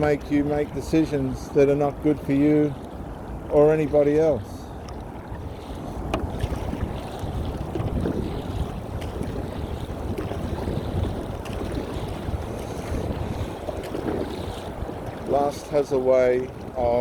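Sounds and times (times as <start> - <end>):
wind gusting across microphone: 0.0 - 17.0.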